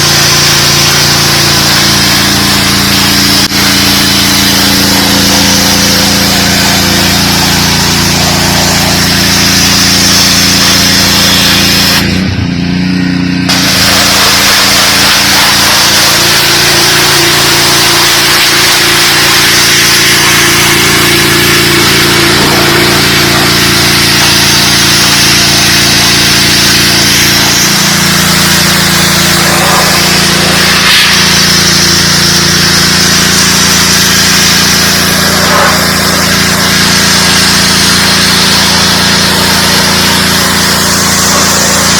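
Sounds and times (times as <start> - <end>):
high-pressure water spray hiss: 0.0 - 12.2, 13.5 - 41.9
pressure washer engine hum: 0.0 - 41.9.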